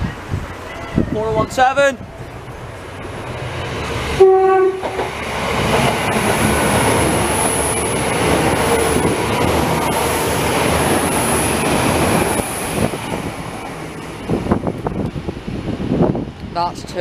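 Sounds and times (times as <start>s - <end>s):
train engine and wheels rumbling: 0.0s - 17.0s
train horn blast: 4.2s - 5.1s.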